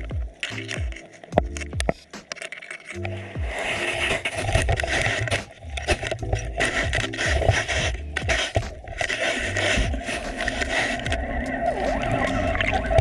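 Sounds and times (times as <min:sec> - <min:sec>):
sharp underwater clicks: 0:00.0 - 0:13.0
underwater scraping and crackling: 0:00.0 - 0:13.0
low underwater rumble: 0:03.0 - 0:13.0.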